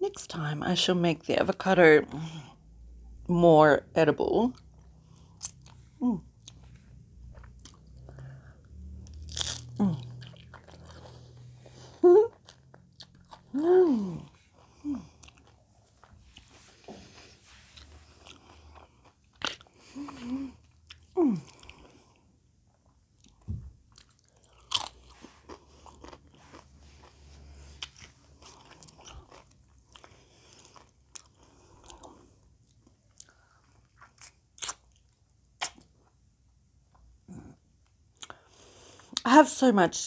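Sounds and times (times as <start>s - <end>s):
chewing and crunching chips: 4.5s - 39.3s
person humming: 11.9s - 12.4s, 13.5s - 15.1s, 21.2s - 21.6s.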